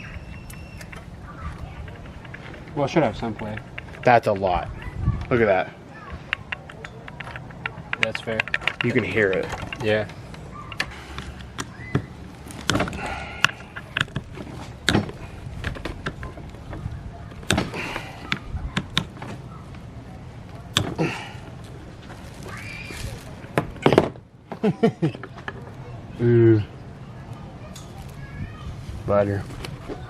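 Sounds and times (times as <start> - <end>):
faint voices: 0.0 - 30.0.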